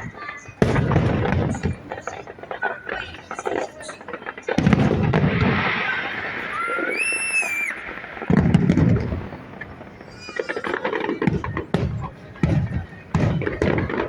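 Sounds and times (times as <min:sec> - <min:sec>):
crackling firework pops: 0:00.0 - 0:14.0
whistling firework shell: 0:03.8 - 0:09.3
loud low firework boom: 0:08.2 - 0:09.6.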